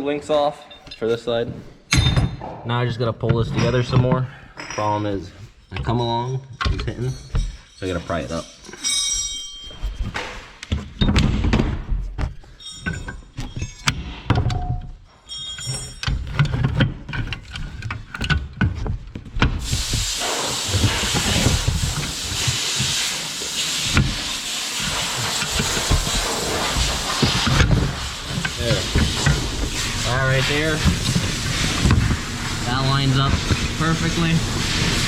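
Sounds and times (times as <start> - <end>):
steel chain and tools clanking: 0.3 - 11.2, 12.0 - 35.0
steady loud hiss: 19.6 - 35.0.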